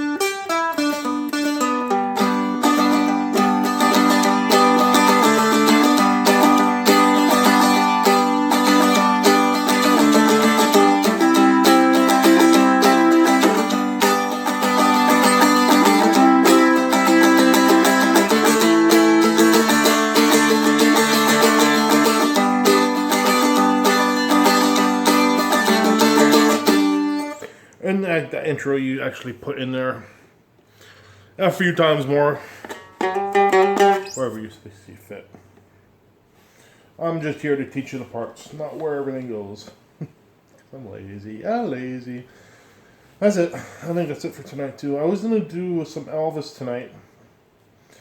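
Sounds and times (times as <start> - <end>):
plucked stringed instrument: 0.0 - 27.5, 32.6 - 34.4
acoustic guitar picking: 0.0 - 27.6, 32.6 - 34.4.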